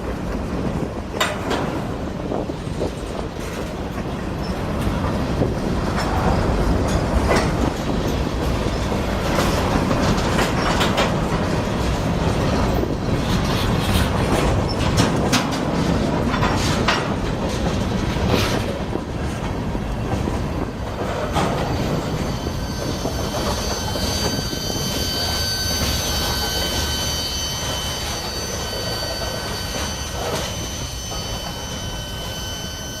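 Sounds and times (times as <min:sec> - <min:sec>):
wheels clicking over rails: 0:00.0 - 0:32.3
freight train rumbling past: 0:00.0 - 0:33.0
wheel squeal: 0:21.4 - 0:33.0.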